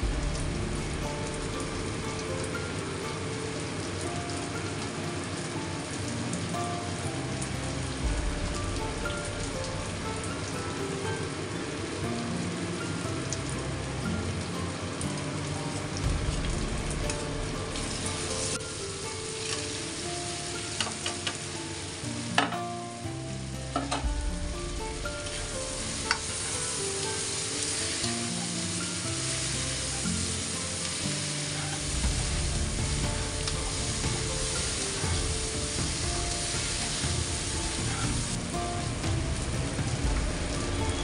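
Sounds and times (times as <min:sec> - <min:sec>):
background music: 0:00.0 - 0:41.0
chicken sizzling in a pan: 0:17.0 - 0:22.6, 0:24.8 - 0:41.0.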